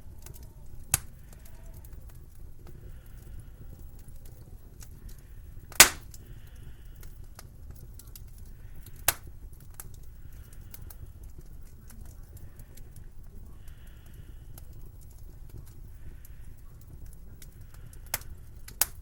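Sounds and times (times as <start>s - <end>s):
wood fire crackling: 0.0s - 19.0s
loud fire pop: 5.8s - 6.1s.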